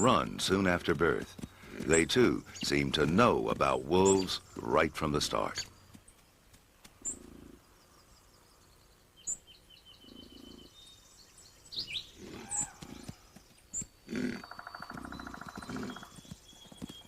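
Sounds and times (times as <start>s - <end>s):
small birds chirping: 0.0s - 17.0s
bison grunting: 14.0s - 16.2s.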